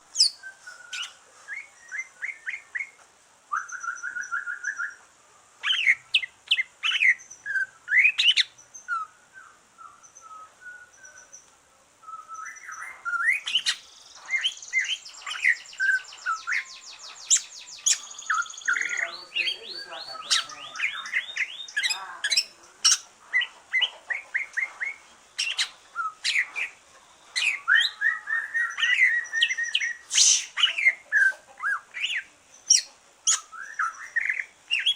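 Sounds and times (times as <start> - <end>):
bird singing whistles: 0.2 - 5.0, 5.7 - 11.3, 12.0 - 21.8, 27.4 - 30.8, 31.7 - 34.9.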